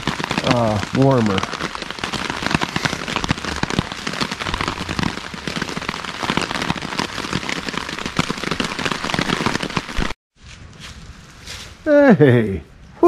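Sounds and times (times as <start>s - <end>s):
rain pattering on a tarp: 0.0s - 10.2s.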